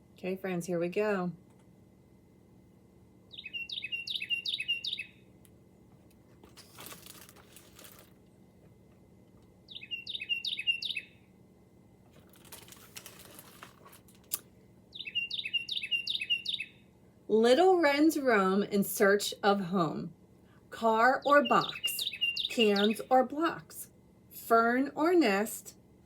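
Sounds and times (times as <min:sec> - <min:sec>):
wren song ringing phrase: 0:03.3 - 0:05.2, 0:09.7 - 0:11.1, 0:15.0 - 0:16.7, 0:21.0 - 0:23.3.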